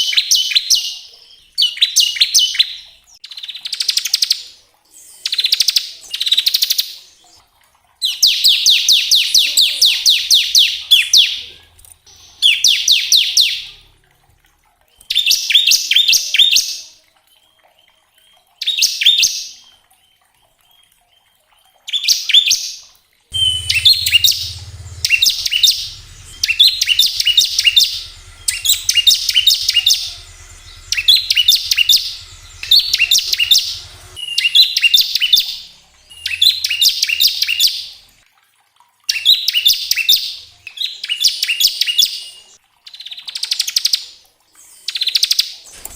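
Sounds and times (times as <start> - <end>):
bird singing rattling song: 8.0 - 13.9, 23.3 - 38.2.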